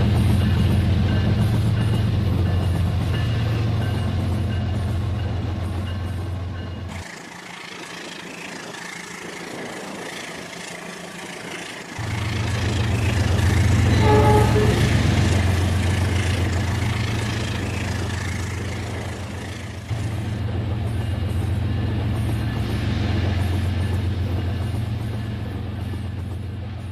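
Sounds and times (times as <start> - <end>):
toy train motor hum: 6.9 - 13.8
toy train whistle toot: 13.9 - 15.1.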